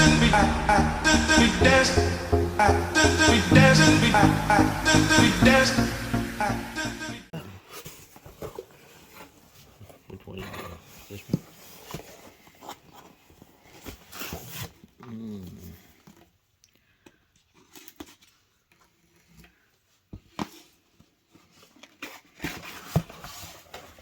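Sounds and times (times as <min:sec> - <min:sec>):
brief voice-like sound: 0:00.0 - 0:05.9.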